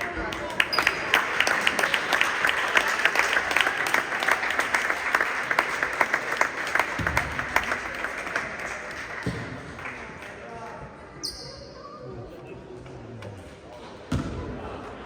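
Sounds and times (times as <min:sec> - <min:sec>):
spectators clapping: 0:00.0 - 0:10.8.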